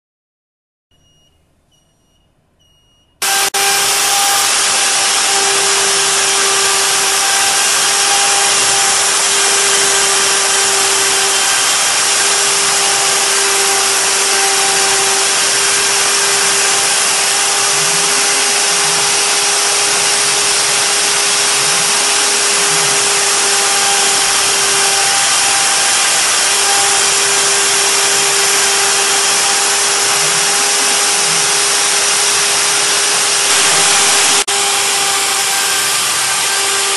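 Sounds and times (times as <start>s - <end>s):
wood router spindle whining: 3.2s - 36.9s.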